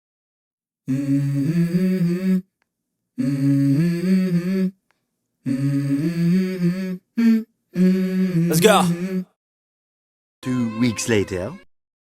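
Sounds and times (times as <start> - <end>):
person humming a tune: 0.9 - 2.5, 3.2 - 4.8, 5.5 - 9.4.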